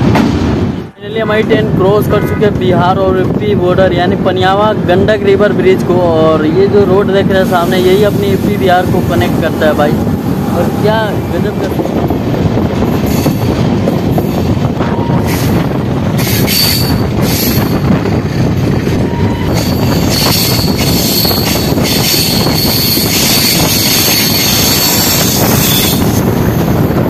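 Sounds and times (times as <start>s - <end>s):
train wheels rumbling on rail: 0.0s - 27.0s
rushing air: 3.1s - 27.0s
high thin wheel squeal: 19.2s - 26.1s.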